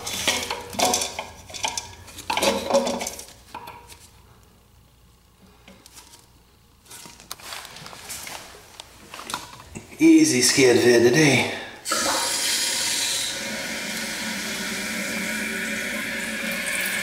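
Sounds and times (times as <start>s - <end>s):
parts clinking in toilet tank: 0.0s - 3.8s.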